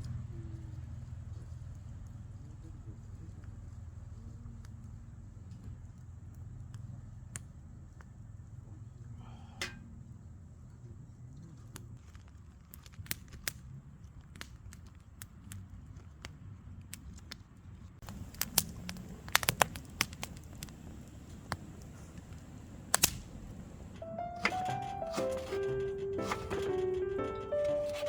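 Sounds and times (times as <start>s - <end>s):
wood fire crackling: 11.9s - 17.4s, 18.0s - 28.0s.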